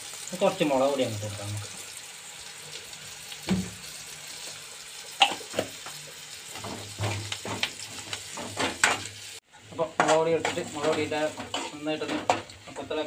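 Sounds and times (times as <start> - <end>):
onions sizzling in oil: 0.0 - 13.0
spoon scraping and knocking pan: 5.2 - 9.2, 9.8 - 12.9.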